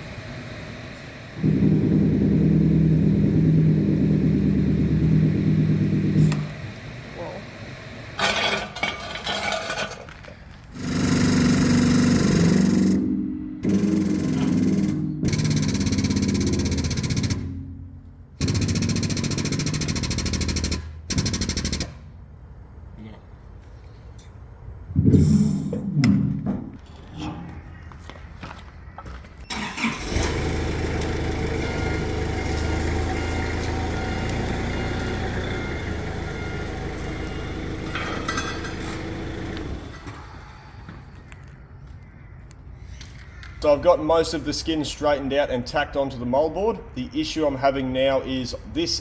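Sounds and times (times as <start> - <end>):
engine running steadily: 0.0 - 23.2, 29.5 - 40.6
power tool hammering: 1.4 - 6.9, 10.7 - 22.1, 30.0 - 40.4.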